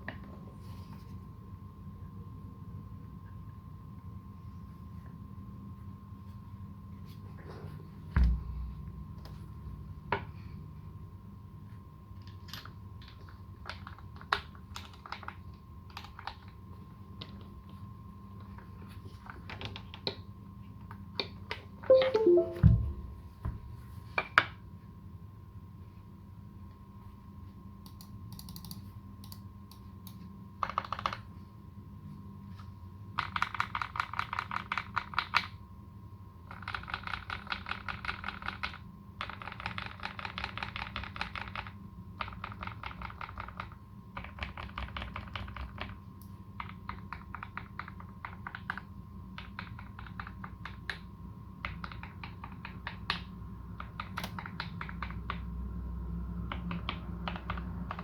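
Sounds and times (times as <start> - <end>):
mechanical keyboard typing: 36.5 - 46.0, 49.4 - 51.0, 51.6 - 55.4, 56.5 - 58.0.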